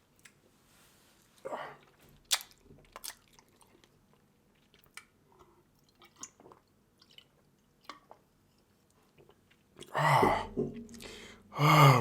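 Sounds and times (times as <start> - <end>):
wet chewing and lip smacks: 1.8 - 9.9.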